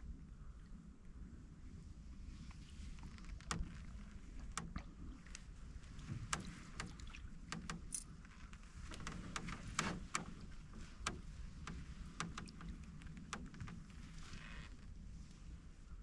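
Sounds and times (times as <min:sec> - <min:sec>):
paddle swishing and dripping: 0:02.4 - 0:15.6
paddle clicking on canoe hull: 0:02.9 - 0:14.9.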